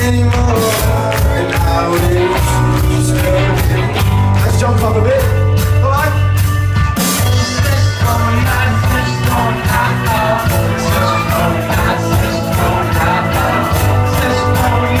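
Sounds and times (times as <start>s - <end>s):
bass line: 0.0s - 15.0s
drums and cymbals: 0.0s - 15.0s
live rock band playing: 0.0s - 15.0s.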